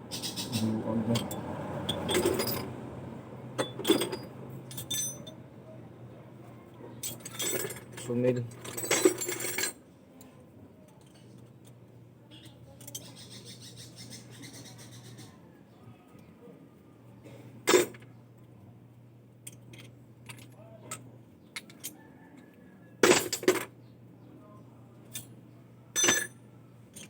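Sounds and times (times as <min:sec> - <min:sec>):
metal tools clinking: 0:01.1 - 0:02.7, 0:03.6 - 0:05.4, 0:07.0 - 0:09.8, 0:17.7 - 0:18.0, 0:23.0 - 0:23.7, 0:26.0 - 0:27.0.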